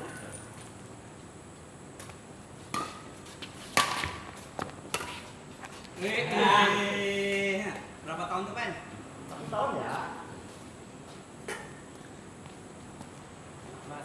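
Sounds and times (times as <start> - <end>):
racket striking shuttlecock: 2.7 - 3.1, 3.7 - 5.2.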